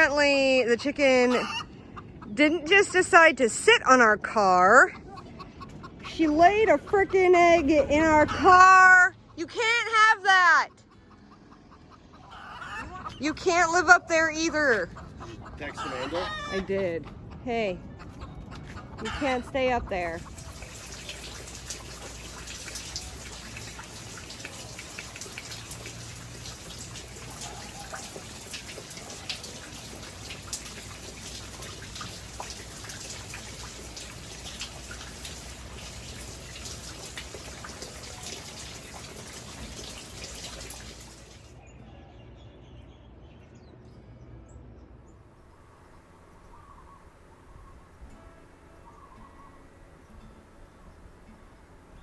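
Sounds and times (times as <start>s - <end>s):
rain pattering: 20.0s - 41.6s.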